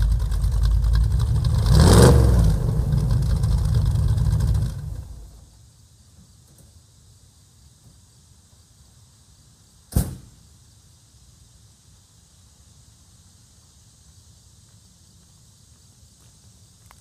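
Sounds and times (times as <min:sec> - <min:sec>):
background hiss and rumble: 0:00.0 - 0:17.0
sharp loud bang: 0:09.9 - 0:10.4.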